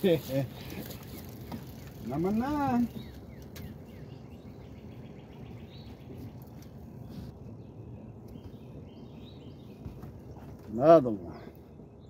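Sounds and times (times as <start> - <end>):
low steady rumble: 0.0 - 12.0
bird chirps: 1.8 - 10.6.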